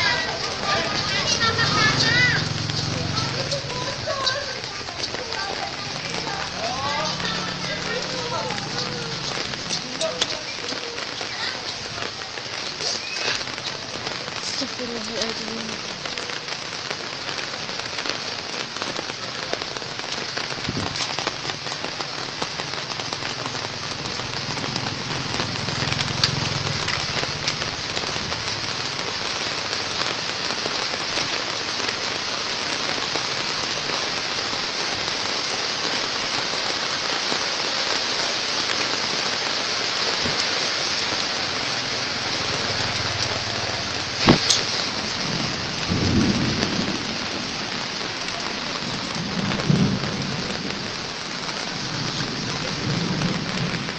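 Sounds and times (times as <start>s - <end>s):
heavy rain pouring: 0.0s - 53.9s
sharp crack: 44.2s - 45.0s.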